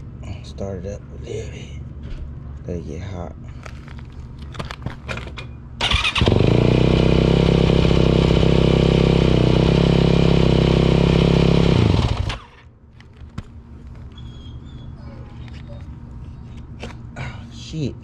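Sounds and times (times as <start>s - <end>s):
motorcycle engine starting and idling: 5.0s - 13.6s.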